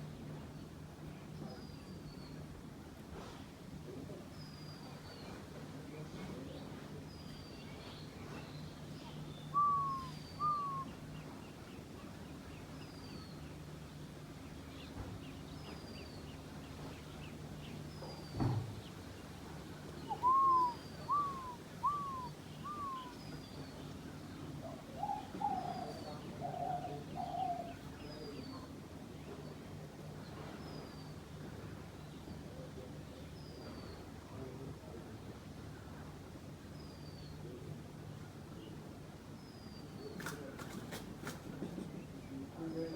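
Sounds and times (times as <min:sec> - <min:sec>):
faint steady hum: 0:00.0 - 0:42.9
dove cooing: 0:09.5 - 0:10.9, 0:20.0 - 0:23.2, 0:24.6 - 0:27.8.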